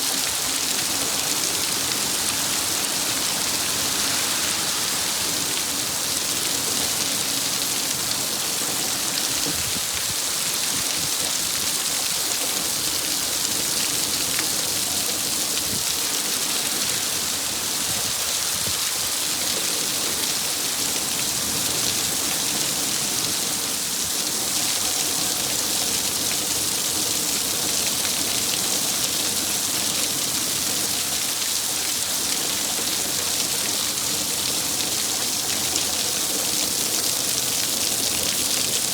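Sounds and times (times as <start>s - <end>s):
heavy rain downpour: 0.0s - 38.9s.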